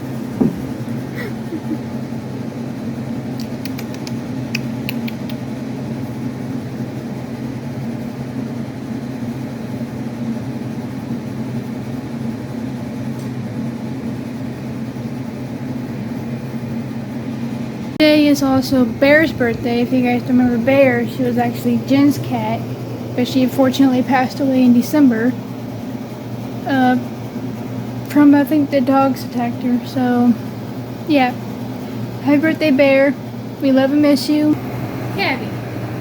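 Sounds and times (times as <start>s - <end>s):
low mechanical hum: 0.0s - 36.0s.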